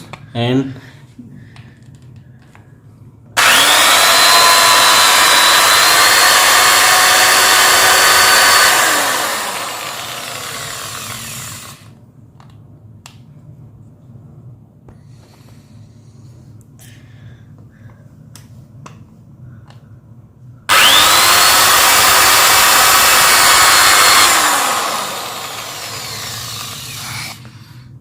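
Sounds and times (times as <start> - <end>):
electric drill whining: 3.4 - 12.0, 20.7 - 27.6.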